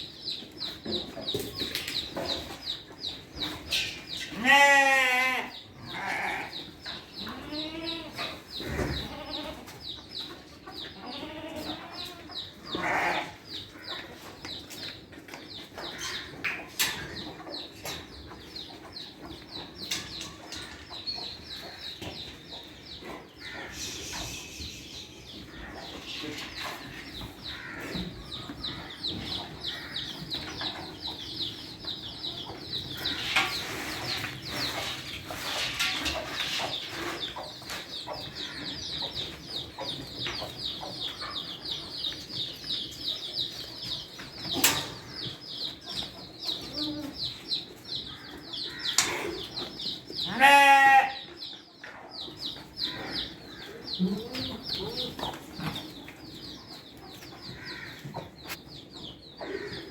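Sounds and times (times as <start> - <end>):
chickens calling: 0.0 - 59.9
goat bleating: 4.4 - 6.4, 7.3 - 8.2, 9.0 - 9.6, 11.0 - 12.2, 12.8 - 13.4, 50.3 - 51.2.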